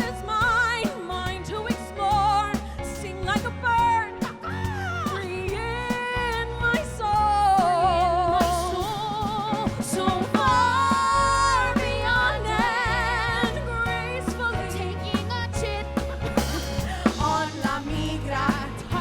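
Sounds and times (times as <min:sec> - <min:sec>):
band with bass and drums: 0:00.0 - 0:19.0
person singing with vibrato: 0:08.7 - 0:19.0.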